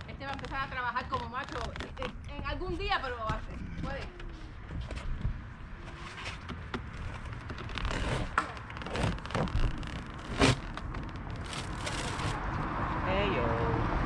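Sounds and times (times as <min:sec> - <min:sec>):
roof being torn apart: 0:00.0 - 0:02.2, 0:06.2 - 0:12.4.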